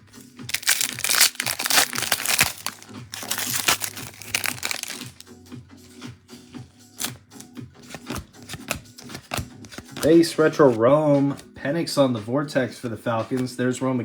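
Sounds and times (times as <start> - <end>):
background music: 0.0 - 14.0
foil wrappers crinkling: 0.4 - 5.2.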